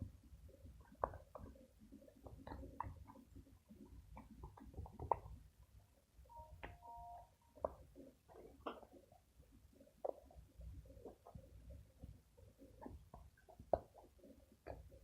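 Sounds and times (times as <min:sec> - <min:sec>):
two-pitched tone: 0:06.3 - 0:07.6.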